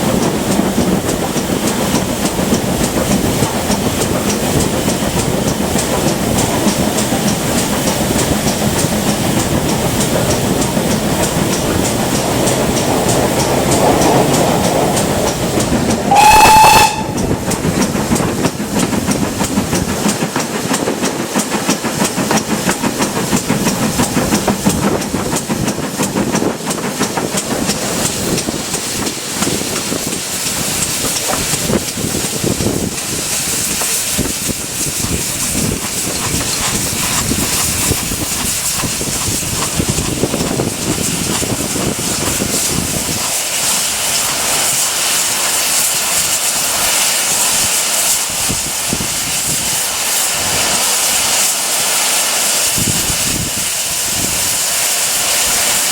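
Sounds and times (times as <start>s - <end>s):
steam train hiss and rumble: 0.0s - 55.9s
train wheels clicking on rails: 0.0s - 55.9s
steam whistle blast: 16.0s - 17.6s.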